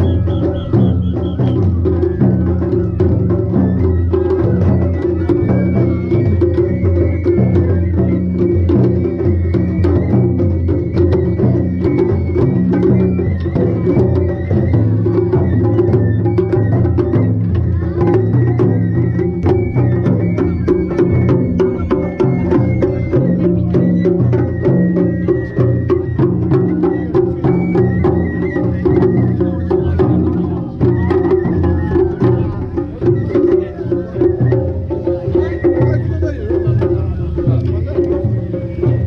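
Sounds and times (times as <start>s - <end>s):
festival drums: 0.0s - 39.0s.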